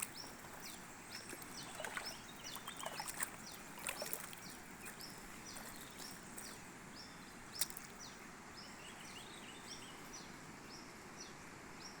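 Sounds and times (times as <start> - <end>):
bird calling: 0.0 - 6.6
steady outdoor hiss: 0.0 - 12.0.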